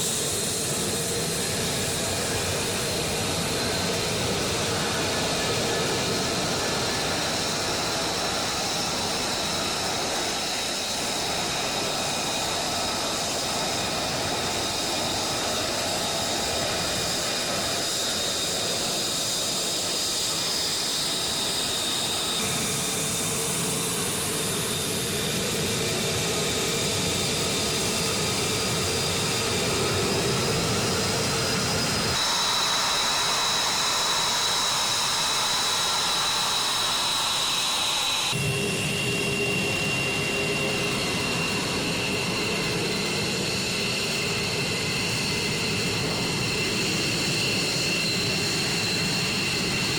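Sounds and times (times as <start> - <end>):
jet engines running: 0.0 - 49.9.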